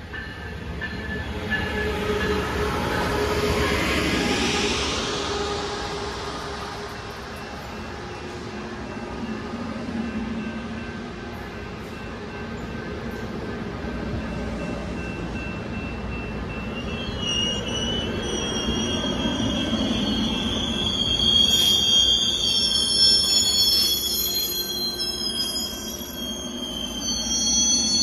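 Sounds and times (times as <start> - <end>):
train rumbling over rails: 0.0 - 28.0
high metallic wheel squeal: 16.1 - 28.0.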